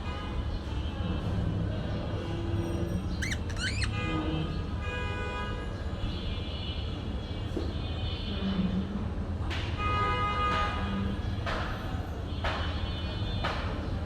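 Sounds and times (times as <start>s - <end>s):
parakeet chirps: 3.2s - 4.0s.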